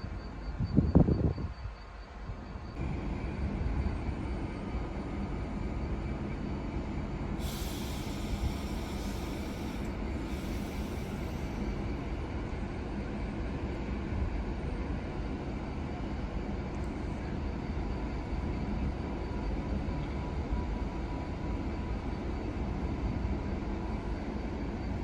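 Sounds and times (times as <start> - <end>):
train rumbling with hum: 0.0 - 25.0
high hiss: 7.4 - 11.9.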